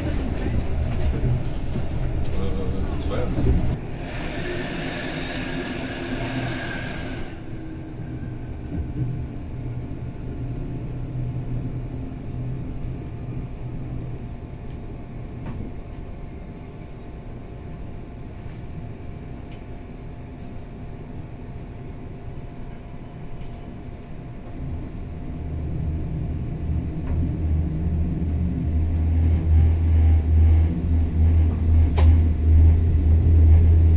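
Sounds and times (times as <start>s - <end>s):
train carriage rumble: 0.0s - 33.9s.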